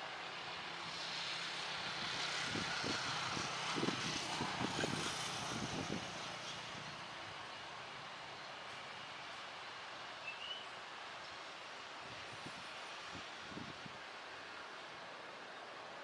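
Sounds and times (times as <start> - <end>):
airliner engine passing: 0.0 - 8.3.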